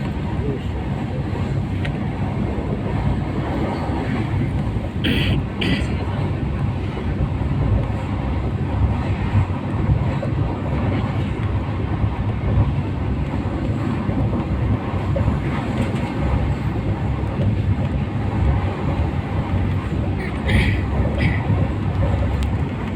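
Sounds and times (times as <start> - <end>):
train rumbling on rails: 0.0 - 22.9.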